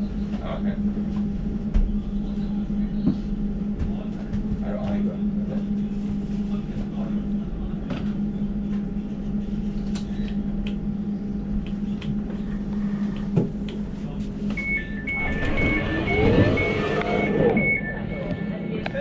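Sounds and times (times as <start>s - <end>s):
train electrical hum: 0.0s - 19.0s
two-tone door warning beeps: 14.5s - 18.7s
rising and falling train sound: 15.1s - 17.7s.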